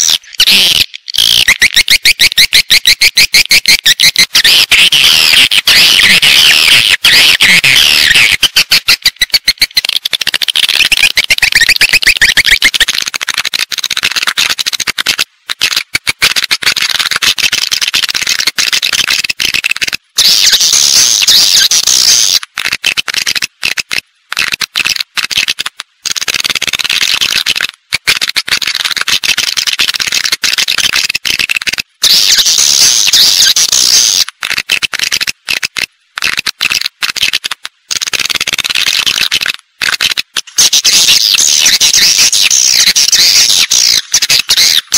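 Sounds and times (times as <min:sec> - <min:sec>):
swiftlet twittering chirps: 0:40.6 - 0:44.9.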